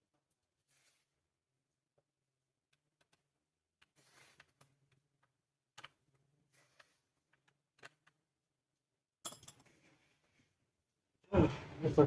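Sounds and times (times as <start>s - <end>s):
faint clicks and taps of parts: 1.9s - 8.4s.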